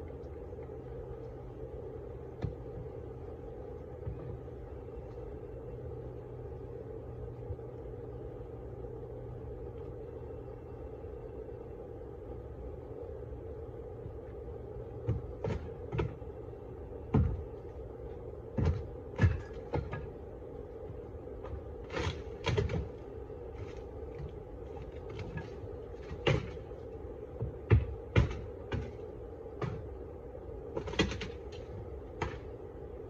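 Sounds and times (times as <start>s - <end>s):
honeybee colony humming: 0.0s - 33.0s
knocks and scrapes: 20.9s - 30.0s.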